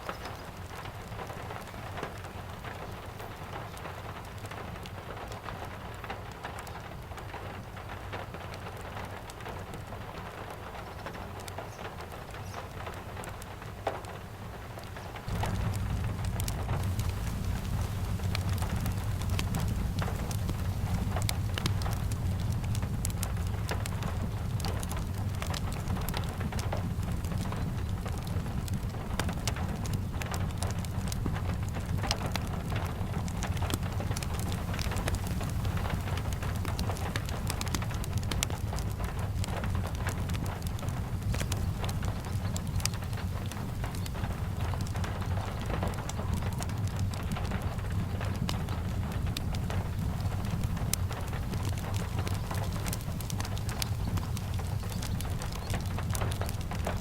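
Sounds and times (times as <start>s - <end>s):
fireplace crackling: 0.0s - 57.0s
steady rain falling: 0.0s - 57.0s
low rumble: 15.3s - 56.9s.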